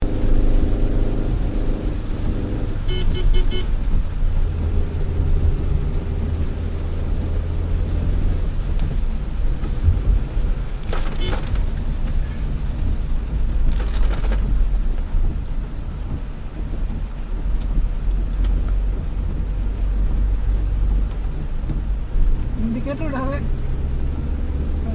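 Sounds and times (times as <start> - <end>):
rain and tyre spray hiss: 0.0 - 24.9
road and engine rumble: 0.0 - 24.9.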